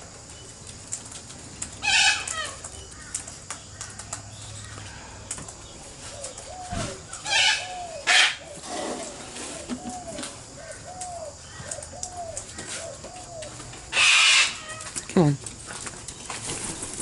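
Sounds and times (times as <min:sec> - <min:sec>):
soft bird calls: 0:01.6 - 0:15.4
cockatoos screeching: 0:01.8 - 0:02.6, 0:06.7 - 0:10.8, 0:13.9 - 0:14.9.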